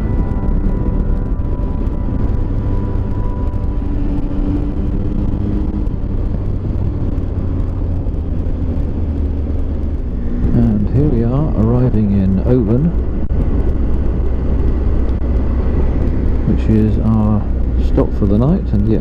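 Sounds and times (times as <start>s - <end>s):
motorcycle engine running: 0.0s - 19.0s
road hum: 0.0s - 19.0s.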